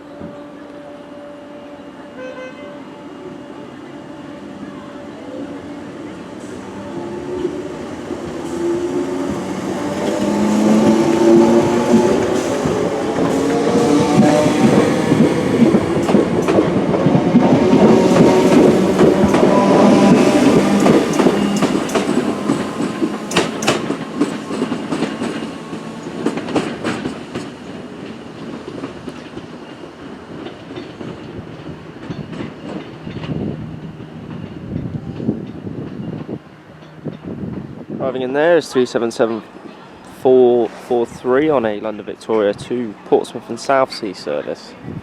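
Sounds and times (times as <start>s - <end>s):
electric train rumbling and humming: 0.0s - 38.6s
wheels clicking over rail joints: 7.4s - 37.7s.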